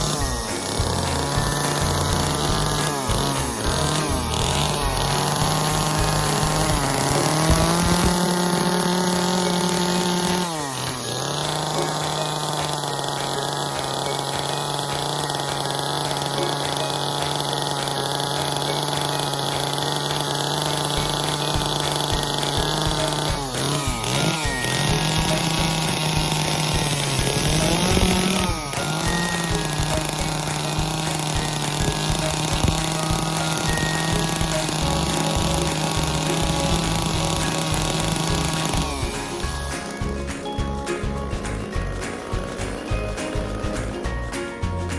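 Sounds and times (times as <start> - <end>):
chainsaw running at high revs: 0.0 - 44.9.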